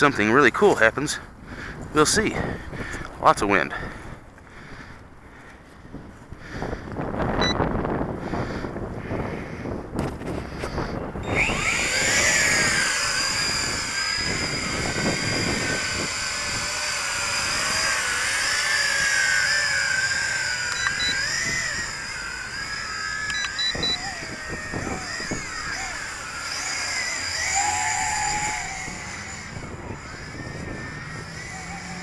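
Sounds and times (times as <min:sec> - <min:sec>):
wind buffeting microphone: 0:01.3 - 0:05.2, 0:05.8 - 0:32.0
drone propellers whining: 0:01.5 - 0:32.0
short high beeps: 0:20.7 - 0:21.2, 0:23.3 - 0:24.0.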